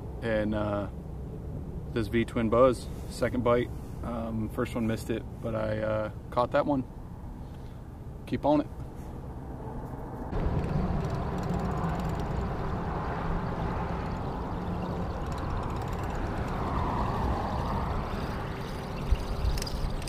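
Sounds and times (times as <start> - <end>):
motorboat engine humming: 10.3 - 20.0.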